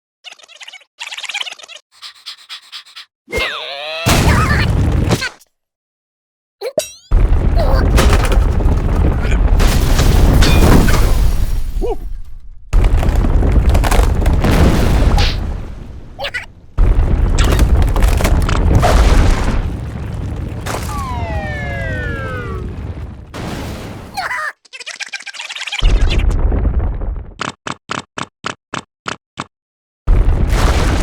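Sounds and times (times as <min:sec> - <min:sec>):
cartoon rumbling crash: 0:04.0 - 0:05.4, 0:07.1 - 0:24.2, 0:25.8 - 0:27.4.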